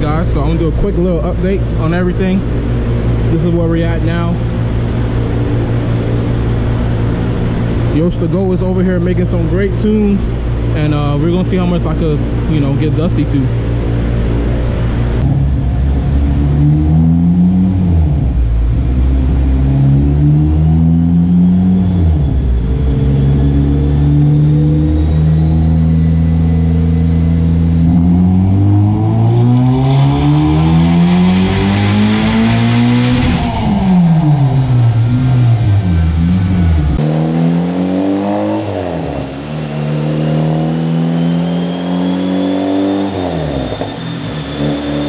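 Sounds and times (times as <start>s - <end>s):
car engine revving: 0.0s - 45.0s.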